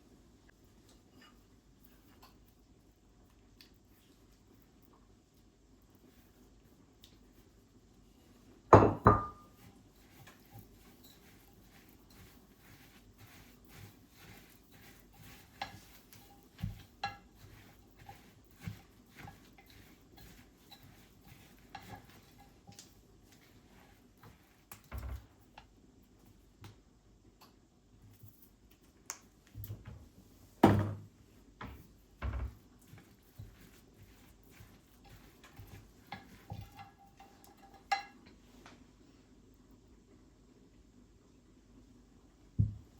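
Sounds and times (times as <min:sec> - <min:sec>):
dishes and cutlery clinking: 0:08.8 - 0:09.6, 0:34.5 - 0:38.4.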